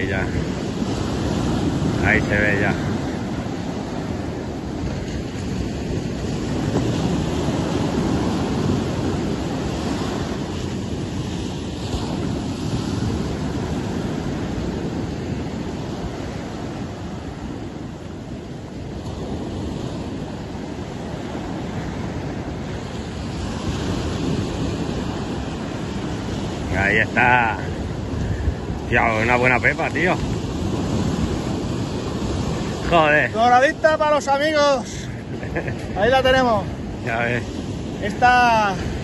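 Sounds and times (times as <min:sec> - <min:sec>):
surf breaking on a beach: 0:00.0 - 0:39.0
wind on microphone: 0:00.0 - 0:39.0.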